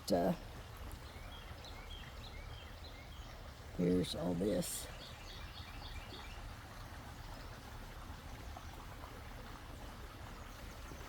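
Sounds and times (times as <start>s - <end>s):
steady outdoor hiss: 0.0s - 11.0s.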